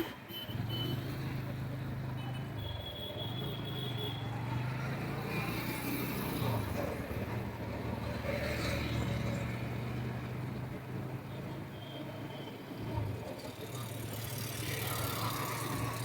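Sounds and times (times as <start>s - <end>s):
road and traffic noise: 0.0s - 16.0s.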